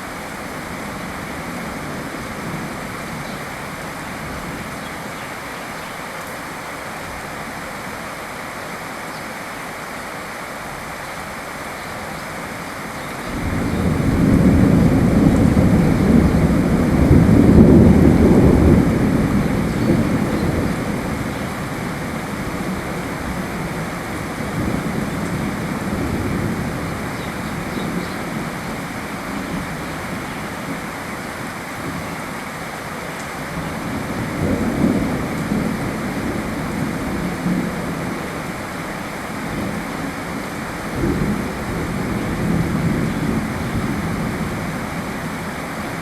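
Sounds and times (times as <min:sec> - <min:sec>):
steady rain: 0:00.0 - 0:46.0
thunder rolling: 0:13.3 - 0:30.0.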